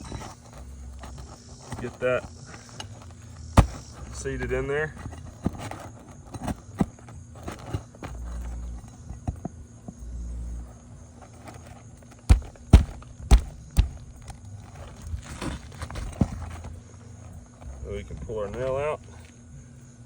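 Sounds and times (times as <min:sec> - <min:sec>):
pry bar knocking and scraping: 0:00.0 - 0:10.0, 0:11.4 - 0:16.8.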